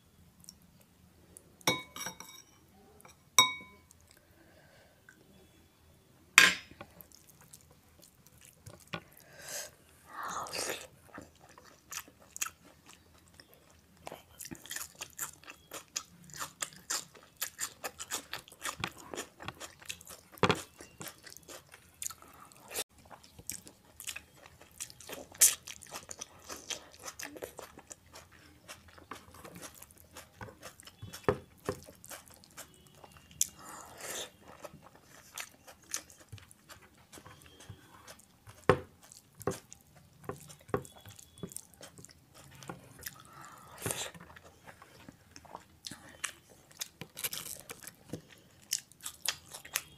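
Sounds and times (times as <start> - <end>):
spoon clinking on glass bowl: 1.7 - 3.9
close chewing and biting: 10.5 - 49.9.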